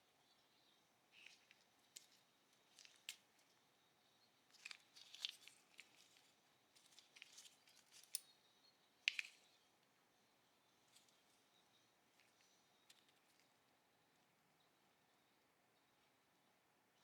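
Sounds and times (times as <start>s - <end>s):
pistol parts clicking and scraping: 1.2s - 3.4s, 4.5s - 8.3s, 9.0s - 9.5s, 12.2s - 13.5s.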